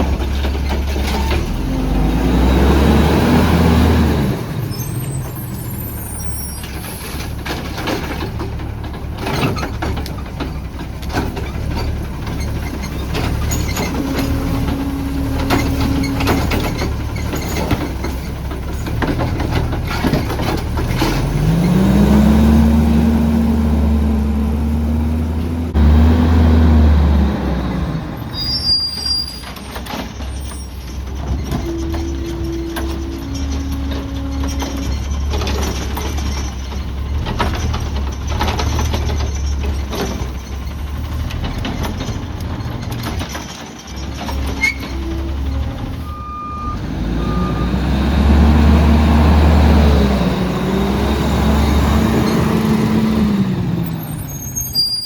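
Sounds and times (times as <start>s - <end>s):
clanks and knocks: 0.0s - 1.8s, 6.6s - 22.3s, 29.4s - 46.0s
garbage truck engine revving: 0.0s - 55.0s.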